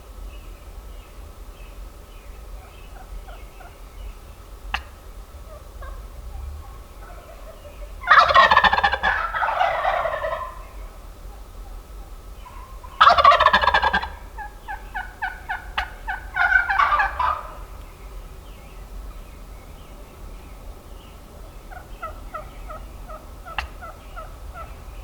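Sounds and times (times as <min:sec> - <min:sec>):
turkey gobbling: 0:02.6 - 0:18.0, 0:21.4 - 0:25.0.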